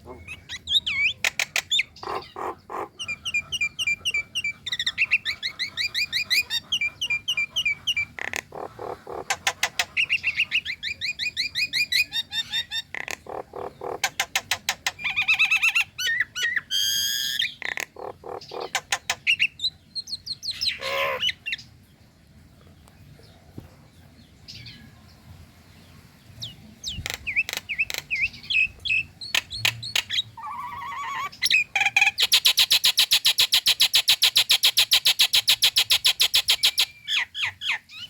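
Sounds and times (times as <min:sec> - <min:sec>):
myna chattering: 0:00.0 - 0:04.3
myna harsh squawking: 0:01.9 - 0:03.2.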